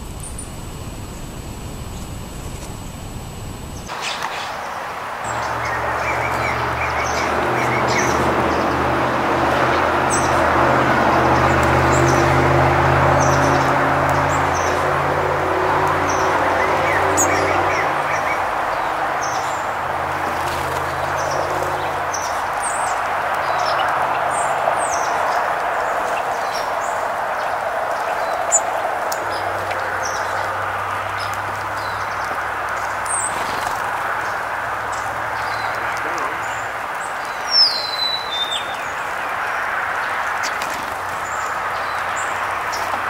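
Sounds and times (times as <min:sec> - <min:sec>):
low hum: 0:00.0 - 0:03.9
steady background rush: 0:00.0 - 0:37.6
songbird chirps: 0:03.7 - 0:43.0.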